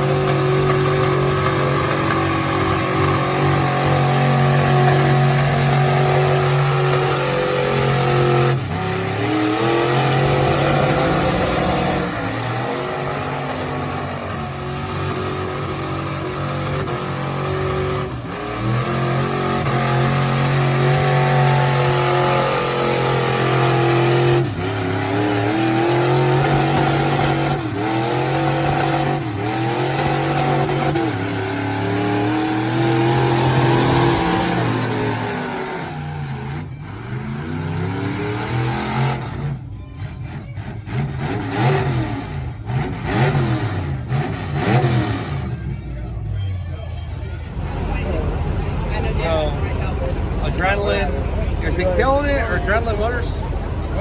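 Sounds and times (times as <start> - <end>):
truck engine at high revs: 0.0 - 54.0.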